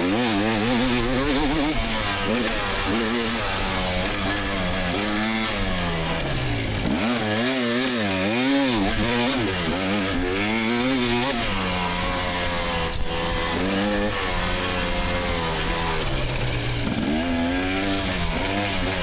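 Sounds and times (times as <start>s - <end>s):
two-stroke engine revving: 0.0s - 19.0s.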